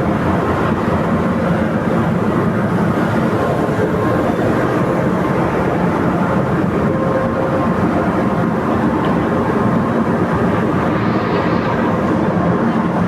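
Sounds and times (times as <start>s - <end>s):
ship engines droning: 0.0s - 13.0s.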